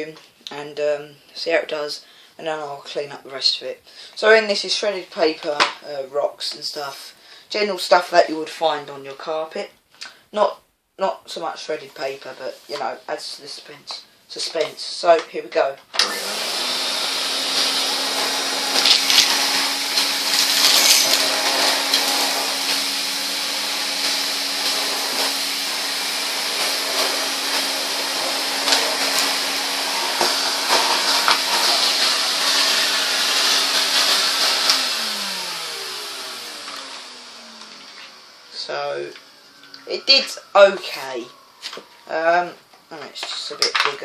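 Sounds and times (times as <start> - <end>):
vacuum cleaner motor humming: 16.0 - 42.0
debris rattling in vacuum: 16.1 - 39.2.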